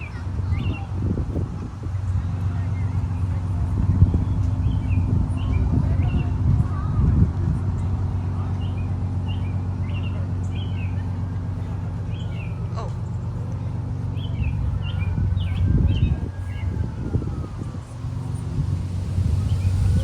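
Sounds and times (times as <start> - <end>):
small birds chirping: 0.0 - 1.2, 7.7 - 17.1
engine idling: 0.0 - 20.0.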